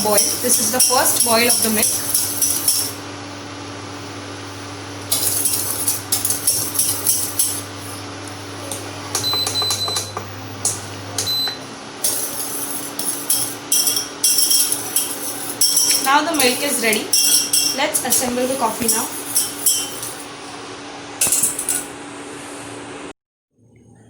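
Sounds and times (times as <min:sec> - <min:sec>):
steady low hum: 0:00.0 - 0:24.0
kitchen clinks and rattles: 0:12.1 - 0:20.3.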